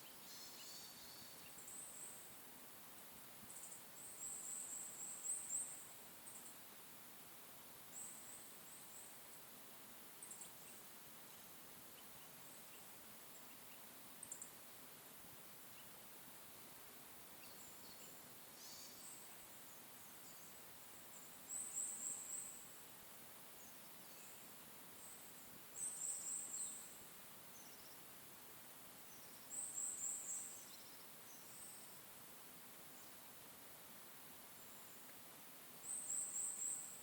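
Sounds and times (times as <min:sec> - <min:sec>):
faint high bird calls: 0:00.0 - 0:02.3
small bird singing: 0:00.0 - 0:02.4, 0:03.4 - 0:07.0, 0:07.8 - 0:09.5, 0:10.1 - 0:28.1, 0:29.0 - 0:32.1, 0:35.7 - 0:37.0
forest ambience hiss: 0:00.0 - 0:37.0.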